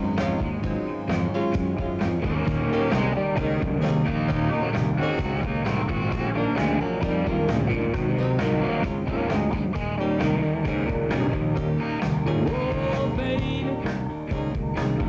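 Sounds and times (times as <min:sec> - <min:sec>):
electric guitar: 0:00.0 - 0:15.0
steady drum beat: 0:00.0 - 0:15.0.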